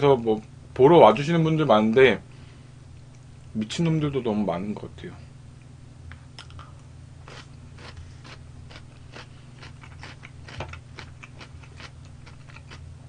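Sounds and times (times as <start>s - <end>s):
steady low hum: 0.0s - 13.0s
chewing crunchy food: 6.4s - 12.9s.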